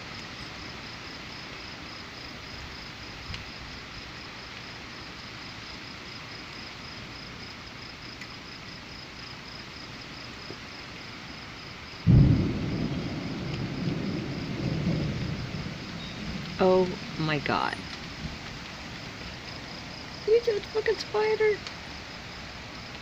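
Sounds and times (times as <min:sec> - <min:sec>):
crickets chirping: 0:00.0 - 0:23.0
rain hissing: 0:00.0 - 0:23.0
thunder clap and rumble: 0:12.0 - 0:21.4.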